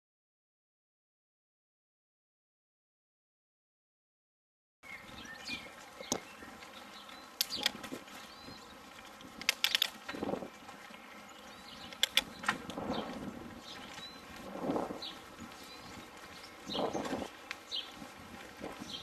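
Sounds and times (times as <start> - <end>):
sharp clicks and knocks: 9.4 - 10.2, 11.9 - 12.8.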